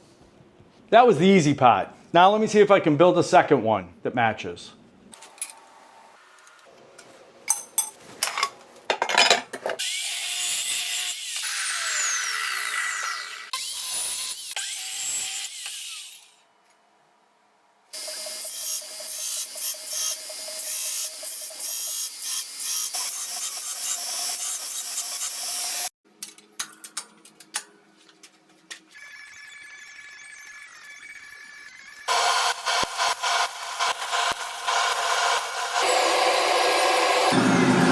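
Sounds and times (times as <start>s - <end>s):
power tool cutting metal: 9.8s - 16.4s, 18.0s - 25.9s, 29.0s - 37.9s.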